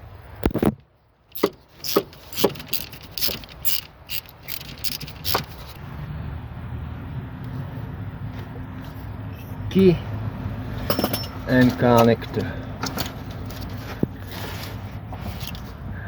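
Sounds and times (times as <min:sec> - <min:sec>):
hand tools clicking and knocking: 0:01.3 - 0:05.8, 0:10.8 - 0:13.8.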